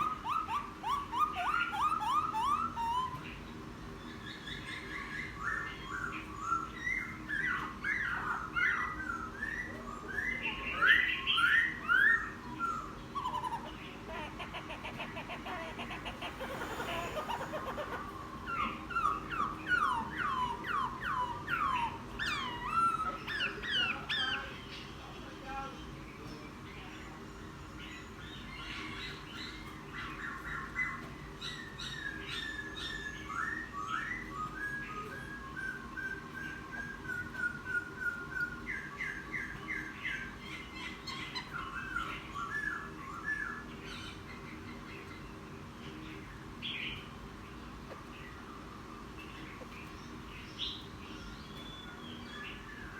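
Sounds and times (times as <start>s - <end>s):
bird singing whistled notes: 0.0s - 3.4s, 30.2s - 40.3s
bird singing whistles and warbling: 0.0s - 3.5s, 4.1s - 24.8s, 27.2s - 44.8s.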